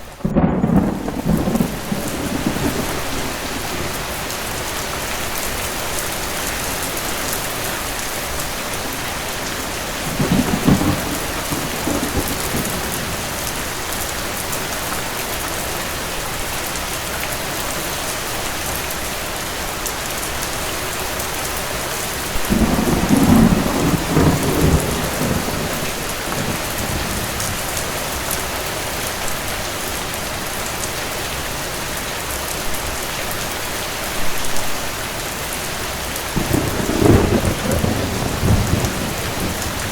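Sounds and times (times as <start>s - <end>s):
steady rain: 0.0s - 39.9s
distant thunder rolling: 0.1s - 4.3s, 8.7s - 14.1s, 22.4s - 28.5s, 36.4s - 39.9s.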